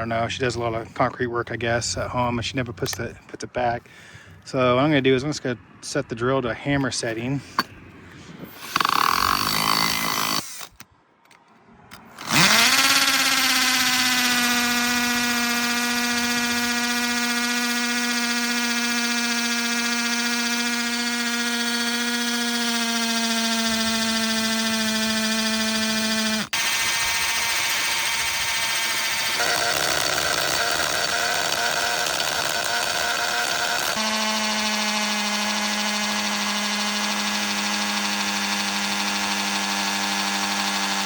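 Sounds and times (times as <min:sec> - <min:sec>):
cordless drill whining: 0:08.4 - 0:10.9, 0:11.9 - 0:41.0.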